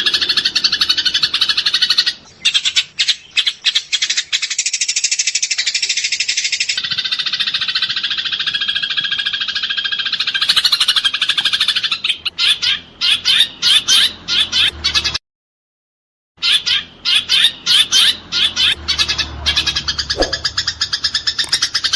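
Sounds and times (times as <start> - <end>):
sparrows chattering: 0.0 - 15.2, 16.4 - 21.9.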